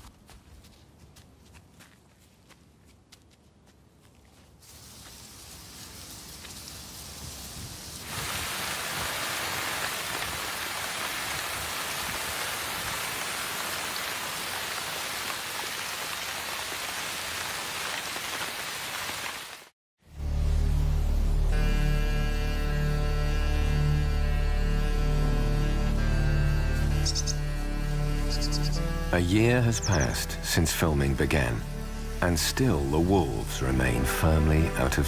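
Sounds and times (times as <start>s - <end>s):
rain hiss: 4.6s - 21.6s, 26.6s - 33.9s.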